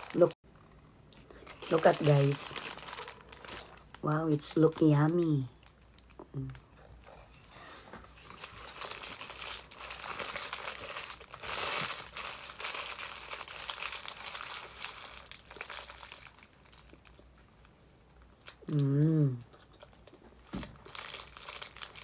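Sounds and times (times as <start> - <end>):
paper wrapper crinkling: 0.0 - 0.4, 1.3 - 6.2, 8.0 - 17.3, 19.9 - 22.0.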